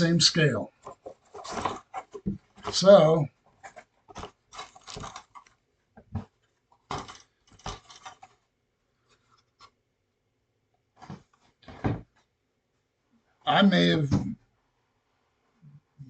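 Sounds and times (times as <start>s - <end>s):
model kit parts rustling and tapping: 0.7s - 9.8s, 10.9s - 12.3s.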